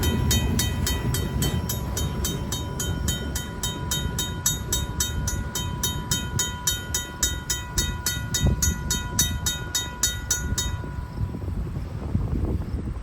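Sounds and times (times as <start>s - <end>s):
train cars knocking: 0.0s - 11.5s
railroad crossing bell ringing: 0.0s - 11.9s
freight train cars rumbling: 0.0s - 13.0s.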